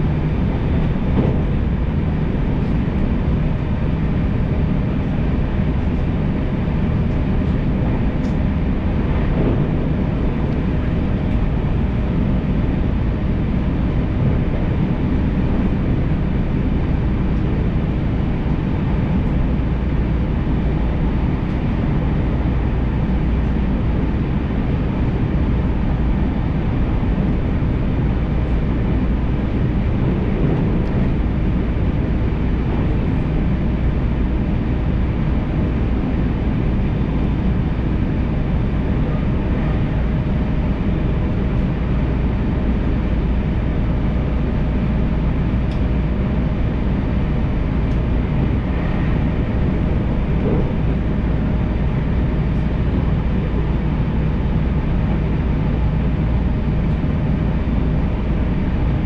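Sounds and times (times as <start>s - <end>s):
faint motor hum: 0.0s - 59.0s
wheels rumbling on rail: 0.0s - 59.0s.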